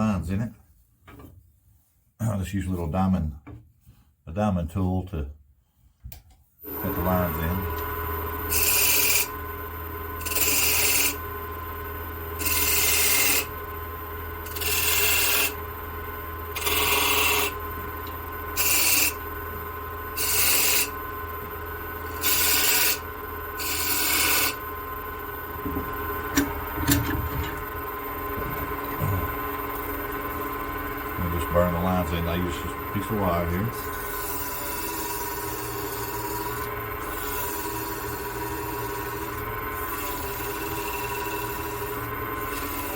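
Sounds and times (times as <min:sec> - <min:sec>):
lathe humming: 0:06.7 - 0:42.9
tool scraping wood on lathe: 0:08.5 - 0:09.4, 0:10.2 - 0:11.2, 0:12.4 - 0:13.5, 0:14.5 - 0:15.6, 0:16.5 - 0:17.6, 0:18.6 - 0:19.2, 0:20.2 - 0:21.0, 0:22.2 - 0:23.0, 0:23.6 - 0:24.6, 0:31.2 - 0:42.9.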